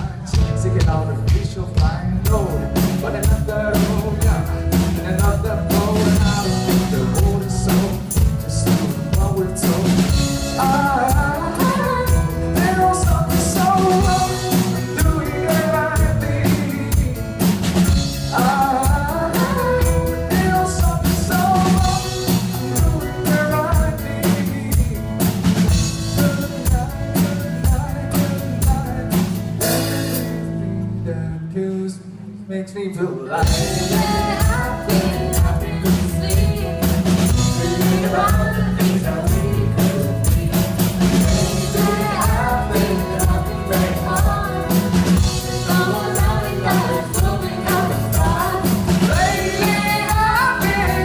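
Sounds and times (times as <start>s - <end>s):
person singing: 0.0s - 17.6s, 18.2s - 32.3s, 33.0s - 51.0s
live band playing pop-rock: 0.0s - 32.5s, 33.2s - 51.0s
drum kit kick and snare: 33.4s - 51.0s.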